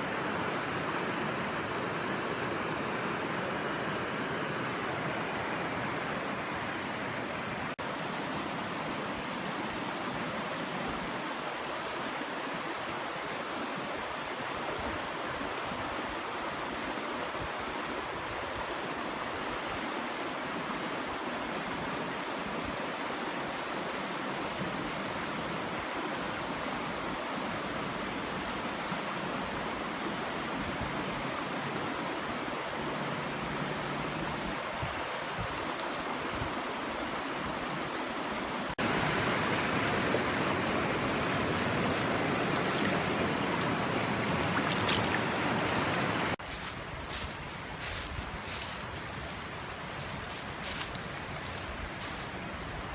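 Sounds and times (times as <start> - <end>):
stream rushing over rocks: 0.0 - 52.9.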